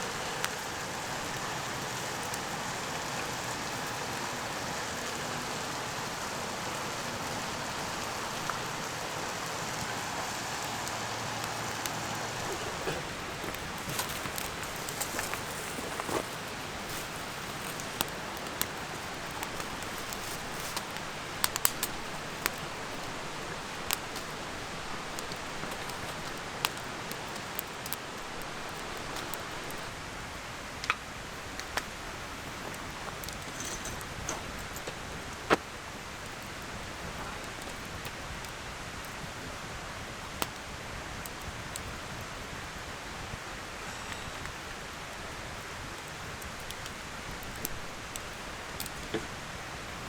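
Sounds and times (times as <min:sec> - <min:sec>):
campfire burning: 0:00.0 - 0:50.0
fire popping and snapping: 0:00.0 - 0:50.0.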